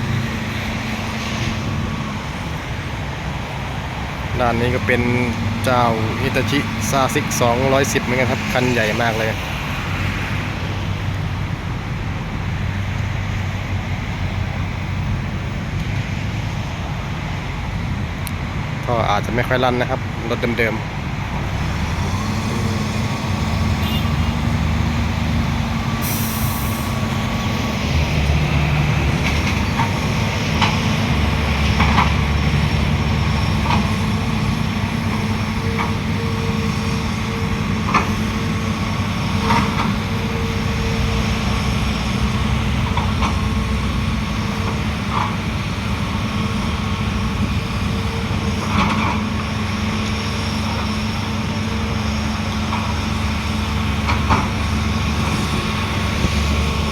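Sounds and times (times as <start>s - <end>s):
heavy diesel engines running: 0.0s - 56.9s
air hiss: 26.0s - 27.1s.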